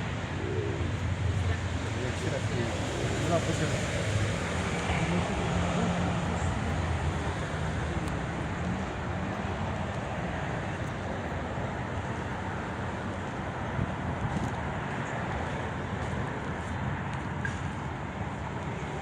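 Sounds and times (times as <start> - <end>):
distant city traffic hum: 0.0 - 19.0.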